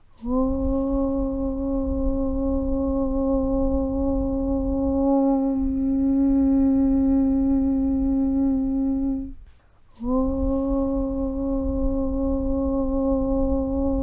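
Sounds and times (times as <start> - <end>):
voice chanting om: 0.0 - 14.0
low rumble: 0.2 - 14.0.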